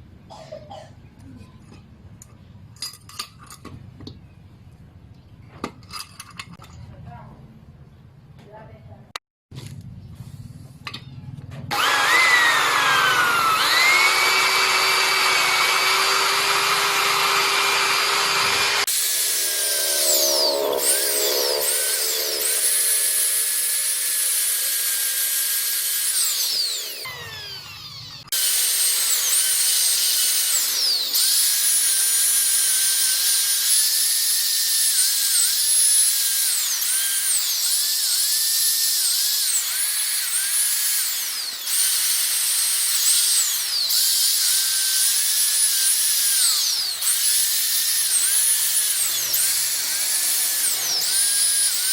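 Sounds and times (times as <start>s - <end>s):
power tool buffing metal: 11.7s - 51.9s.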